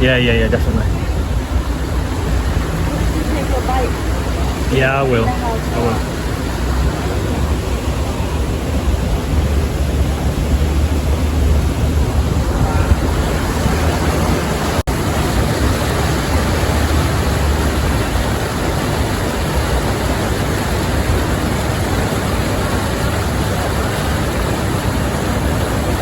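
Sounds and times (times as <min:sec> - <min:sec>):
vehicle road noise: 0:00.0 - 0:26.0
wind buffeting microphone: 0:00.0 - 0:26.0.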